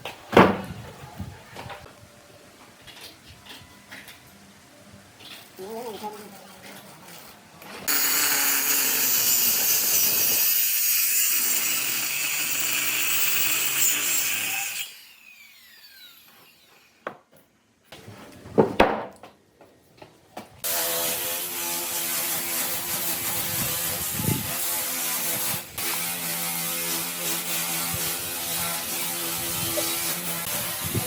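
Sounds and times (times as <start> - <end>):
power tool cutting wood: 7.9 - 16.9, 20.6 - 31.0.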